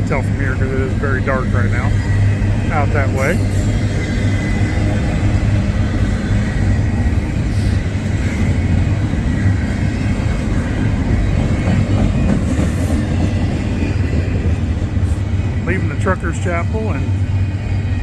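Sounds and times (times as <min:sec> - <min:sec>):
freight train rumbling: 0:00.0 - 0:18.0.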